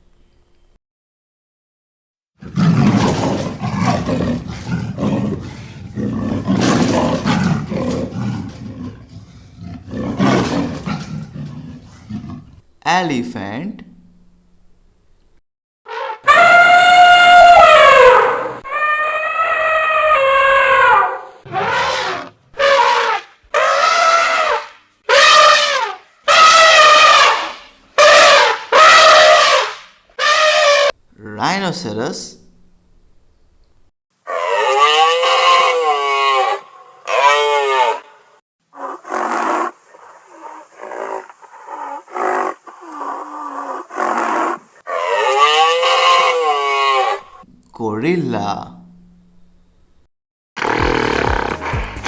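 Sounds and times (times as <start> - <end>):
leopard growling and roaring: 2.4 - 12.6, 17.5 - 23.1, 38.7 - 47.4, 50.6 - 52.0
elephant trumpeting: 15.9 - 31.0, 34.2 - 38.1, 38.8 - 47.5, 50.6 - 52.0.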